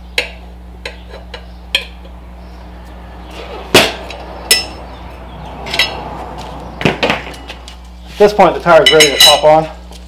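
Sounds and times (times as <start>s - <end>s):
loud metallic knocks: 3.5s - 4.9s, 6.8s - 7.6s.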